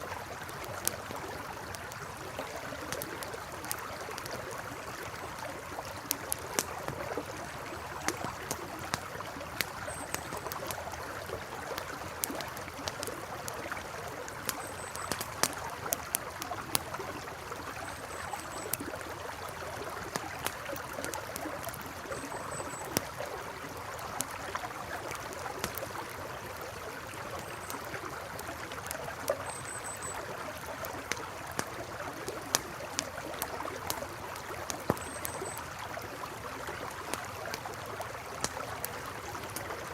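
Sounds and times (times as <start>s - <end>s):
burning wood crackling: 0.0s - 39.9s
faint high chirp: 29.4s - 30.3s, 35.0s - 35.7s.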